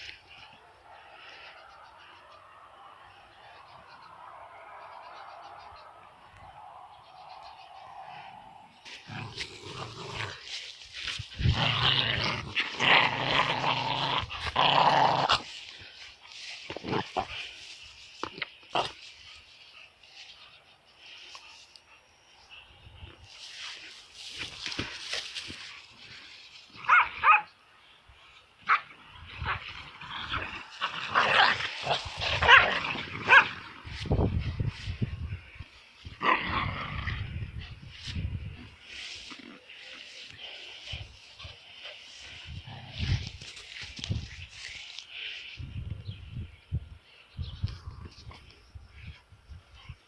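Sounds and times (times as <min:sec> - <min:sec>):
dog growling: 0:08.2 - 0:10.6, 0:11.3 - 0:15.6, 0:29.4 - 0:34.0
rustling: 0:08.8 - 0:21.8
dog barking and yipping: 0:26.8 - 0:27.5, 0:31.2 - 0:33.6.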